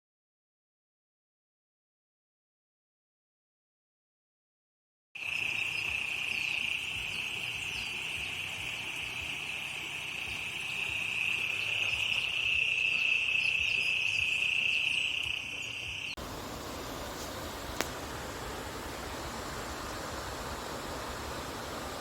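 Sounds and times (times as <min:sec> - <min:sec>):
faint bird chirps: 0:05.2 - 0:16.2
insects shrilling: 0:05.2 - 0:16.2.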